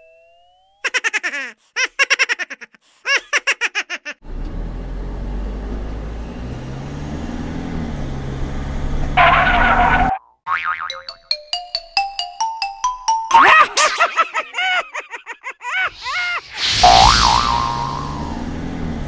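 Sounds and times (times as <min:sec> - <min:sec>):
cartoon giggling: 0:00.8 - 0:04.2, 0:13.3 - 0:18.2
car engine sound effect: 0:04.2 - 0:10.2, 0:16.0 - 0:19.0
hissing burst: 0:16.0 - 0:18.5.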